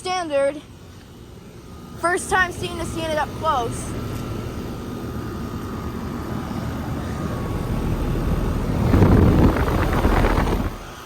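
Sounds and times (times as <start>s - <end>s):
air conditioner condenser humming: 0.0s - 11.0s.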